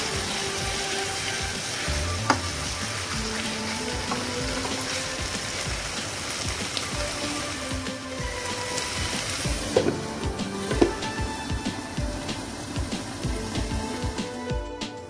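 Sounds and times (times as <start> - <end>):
background music: 0.0 - 15.0
chicken sizzling in oil: 0.0 - 15.0.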